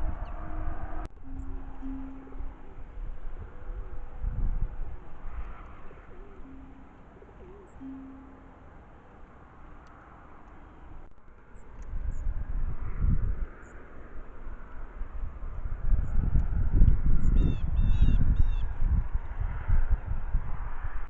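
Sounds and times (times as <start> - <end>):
dove cooing: 1.2 - 10.9.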